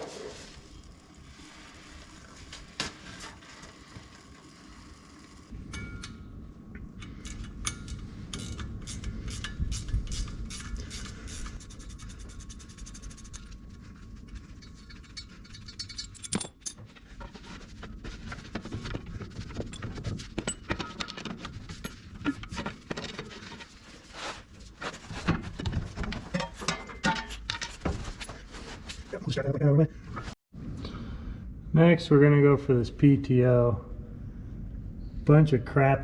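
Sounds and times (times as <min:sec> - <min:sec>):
hand tools clinking on metal: 0:26.3 - 0:28.4.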